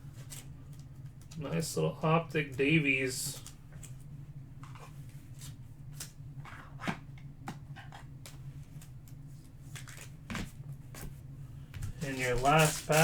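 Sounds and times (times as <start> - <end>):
steady low hum: 0.0 - 13.0
cards and wrappers rustling: 8.6 - 11.1, 11.7 - 13.0.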